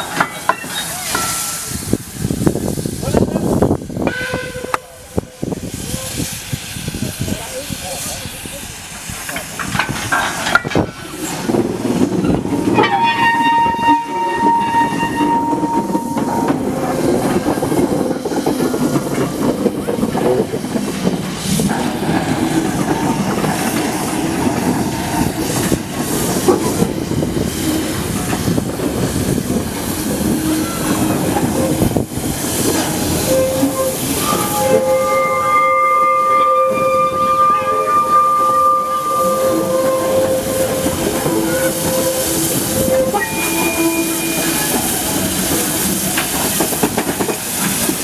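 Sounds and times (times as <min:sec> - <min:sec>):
train wheels clattering on rails: 0:00.0 - 0:05.0, 0:09.0 - 0:35.1, 0:38.4 - 0:48.0
steam whistle: 0:12.7 - 0:16.6, 0:33.2 - 0:44.9.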